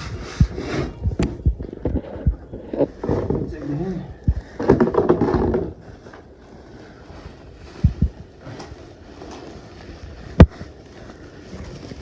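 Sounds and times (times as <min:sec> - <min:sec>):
wind rumbling on microphone: 0:00.0 - 0:12.0
low thumps: 0:00.4 - 0:05.8.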